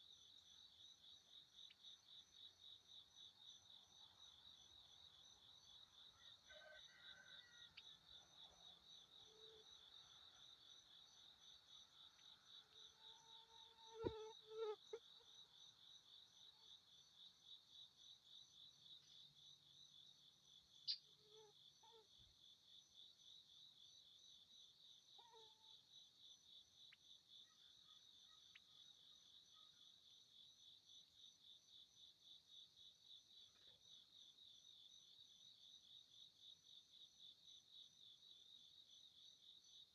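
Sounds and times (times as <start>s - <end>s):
insects trilling: 12.1s - 15.7s.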